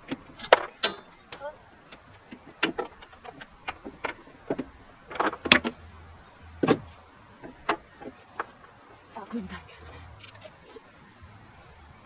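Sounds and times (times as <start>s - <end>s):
hand tools knocking on metal: 0.1s - 1.4s.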